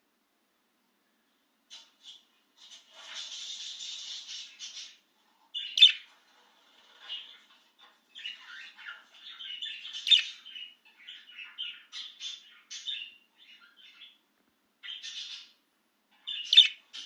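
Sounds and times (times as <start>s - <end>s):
budgerigar chattering and warbling: 16.2s - 17.0s.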